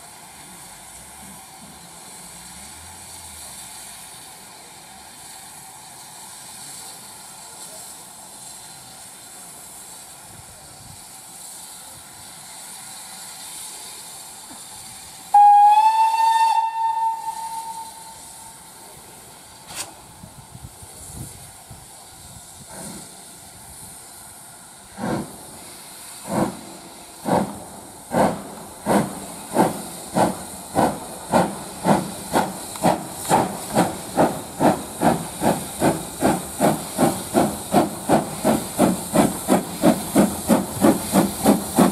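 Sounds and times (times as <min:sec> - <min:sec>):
steam hissing: 0:00.0 - 0:41.9
locomotive exhaust chuffs: 0:00.2 - 0:41.9
steam locomotive whistle: 0:15.3 - 0:18.6.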